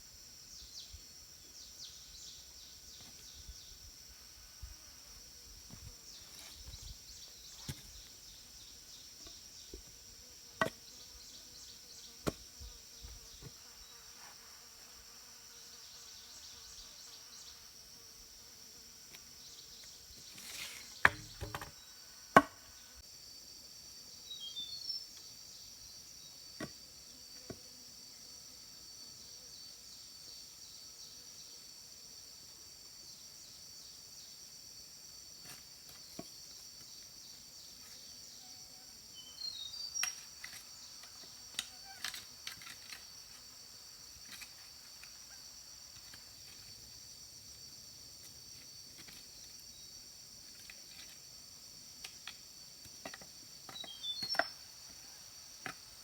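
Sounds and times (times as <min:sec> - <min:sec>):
insects chirring: 0:00.0 - 0:56.0
bird chirps: 0:53.8 - 0:54.6.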